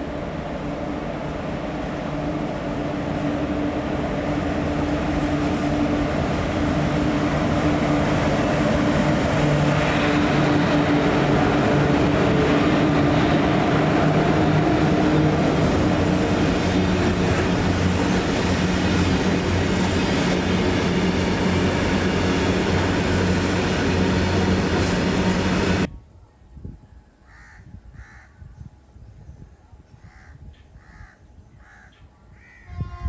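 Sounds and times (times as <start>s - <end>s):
express train passing: 0.0s - 25.9s
crows cawing: 27.3s - 28.4s, 30.1s - 32.7s.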